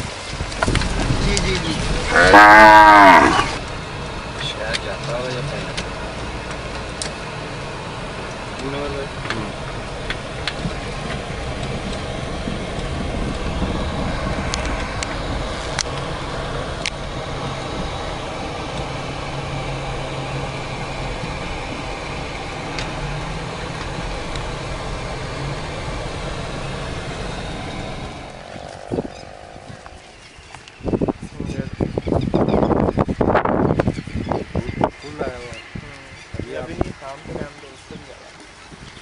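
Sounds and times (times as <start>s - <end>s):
engine running steadily: 0.0s - 39.0s.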